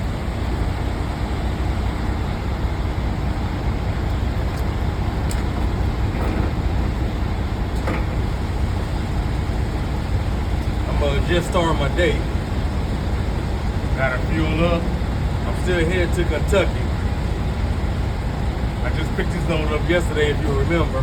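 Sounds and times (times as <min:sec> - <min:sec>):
road noise: 0:00.0 - 0:21.0
truck diesel engine rumble: 0:00.0 - 0:21.0
light ticks: 0:04.0 - 0:05.7
faint steady hum: 0:06.7 - 0:21.0.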